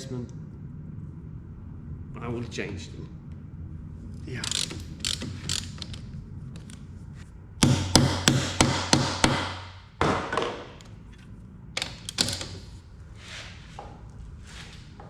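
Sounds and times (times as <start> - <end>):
tool clicks: 4.4 - 6.0
tool knocking on bolts: 7.6 - 10.8.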